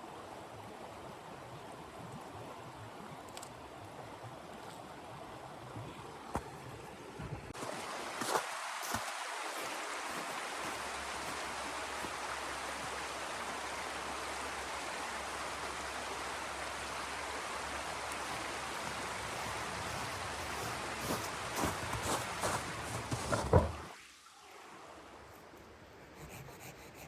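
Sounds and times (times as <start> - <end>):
blizzard wind hissing: 7.5 - 23.4.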